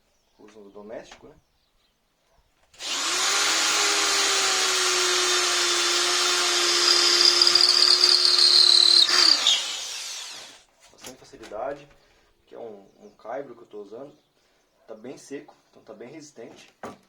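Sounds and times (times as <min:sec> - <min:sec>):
electric drill boring into wood: 0:02.8 - 0:10.6.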